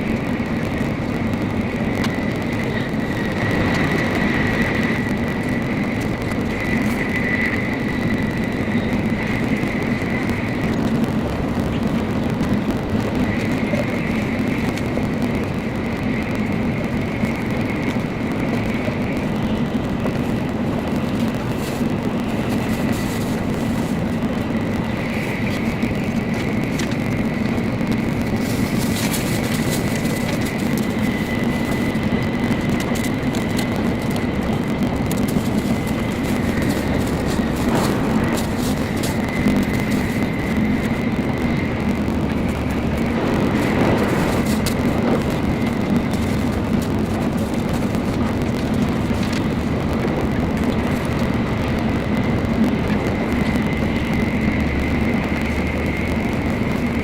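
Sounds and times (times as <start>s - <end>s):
thin high whine: 0.0s - 57.0s
train cabin low rumble: 0.0s - 57.0s.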